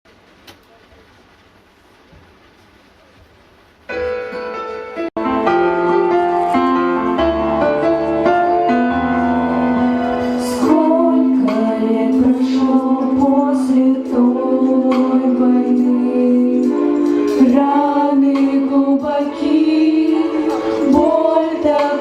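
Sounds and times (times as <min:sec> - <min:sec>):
instrumental backing chords: 0:03.9 - 0:22.0
voices singing: 0:10.4 - 0:22.0.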